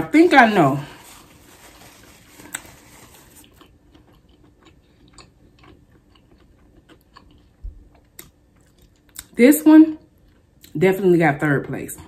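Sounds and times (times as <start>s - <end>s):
quiet chewing: 2.0s - 9.4s, 10.2s - 10.7s.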